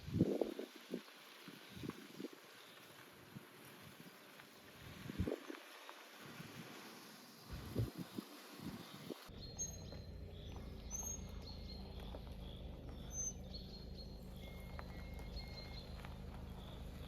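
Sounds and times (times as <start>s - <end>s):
bird chirps: 8.0s - 17.0s
low steady rumble: 9.3s - 17.0s
short whistled notes: 13.1s - 16.0s.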